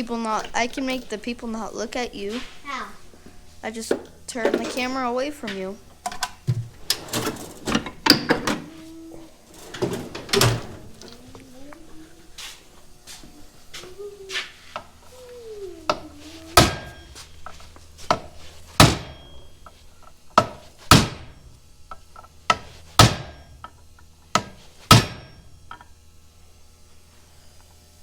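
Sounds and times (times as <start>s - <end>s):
heavy hammer strikes on metal: 15.8s - 17.3s, 18.0s - 19.6s, 20.4s - 21.5s, 22.5s - 25.5s.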